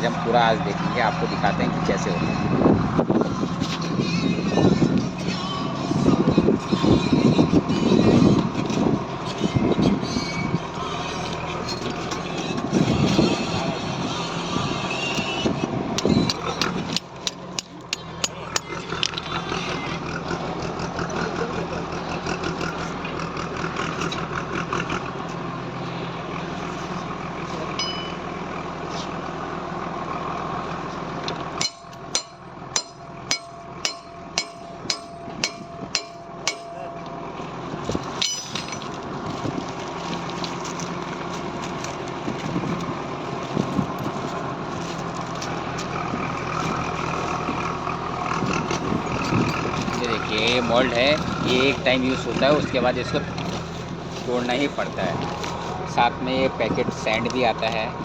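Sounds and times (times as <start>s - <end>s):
background voices: 0.0s - 17.0s, 31.8s - 58.0s
engine running: 0.0s - 58.0s
sharp evenly spaced knocks: 31.6s - 37.1s.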